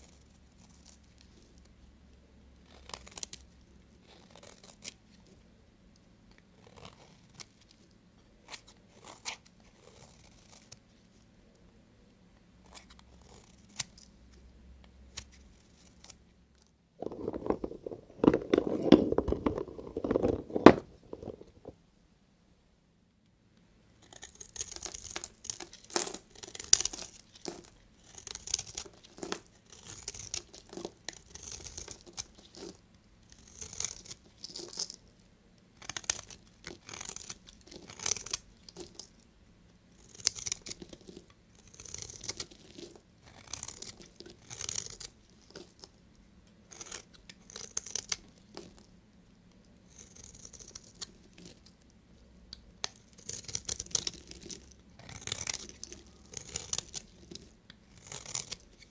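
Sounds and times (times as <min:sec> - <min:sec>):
knife cutting through soap: 0:46.7 - 0:48.8, 0:52.8 - 0:58.9.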